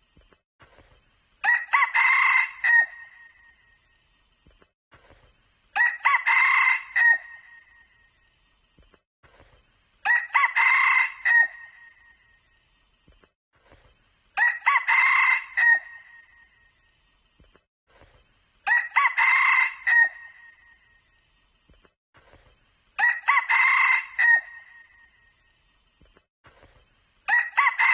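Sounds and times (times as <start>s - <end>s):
junglefowl crowing: 10.1s - 12.0s, 18.7s - 20.6s, 23.0s - 24.9s, 27.3s - 27.9s.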